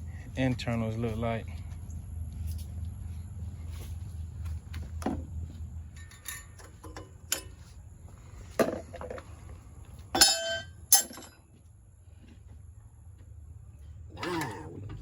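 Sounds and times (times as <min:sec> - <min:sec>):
metal tools clinking: 0:05.9 - 0:07.7, 0:10.2 - 0:11.4
ringing metallic clanks: 0:06.0 - 0:07.5, 0:10.2 - 0:11.4.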